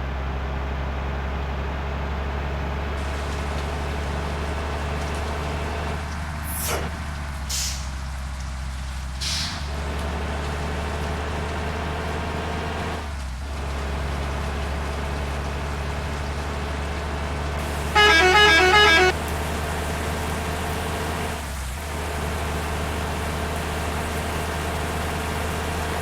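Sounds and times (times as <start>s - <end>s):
bus engine running: 0.0s - 26.0s
musical horn tune: 17.6s - 19.3s.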